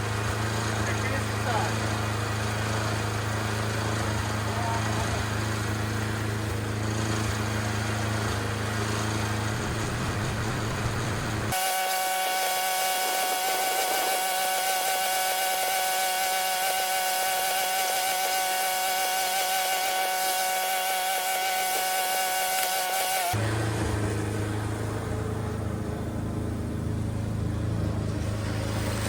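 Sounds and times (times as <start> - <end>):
snow blower engine running: 0.0 - 29.0
high-pitched whine: 8.3 - 27.4.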